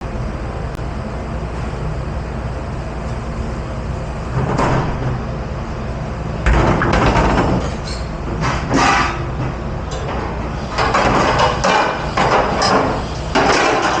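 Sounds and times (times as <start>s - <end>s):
machinery hum: 0.0s - 14.0s
dishes and racks clattering: 6.5s - 14.0s.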